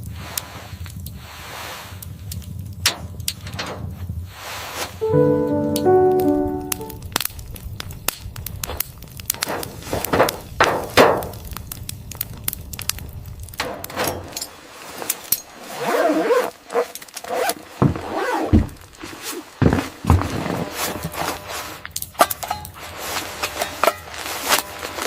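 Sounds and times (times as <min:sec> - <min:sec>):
knocks and thuds: 0:17.8 - 0:18.8.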